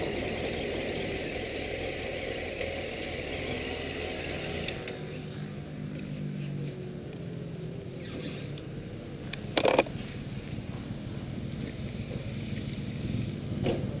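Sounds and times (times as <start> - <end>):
motorcycle engine idling: 8.3 - 14.0.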